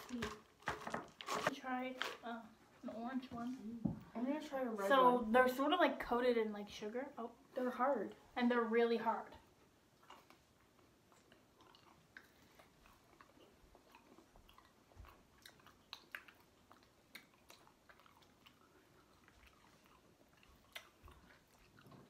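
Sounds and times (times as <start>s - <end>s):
chewing hard candies: 10.0s - 22.0s.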